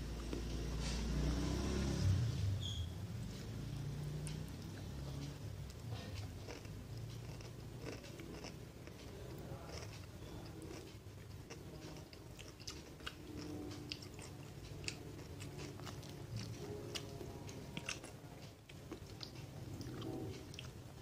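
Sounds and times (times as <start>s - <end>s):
chewing and crunching: 3.3s - 21.0s.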